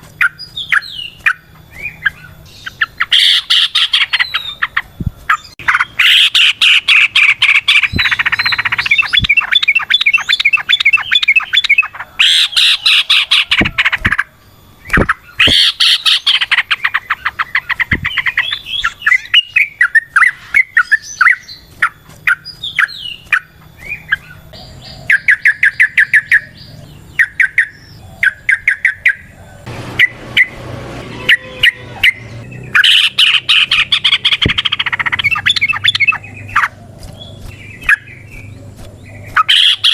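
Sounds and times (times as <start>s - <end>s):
bulbul chattering song: 0.0s - 39.9s.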